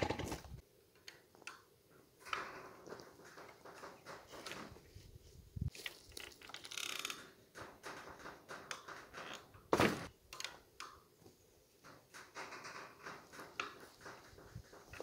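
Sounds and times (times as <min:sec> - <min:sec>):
knocks and scrapes on fence: 0:02.2 - 0:05.4, 0:07.1 - 0:10.1, 0:11.8 - 0:15.0.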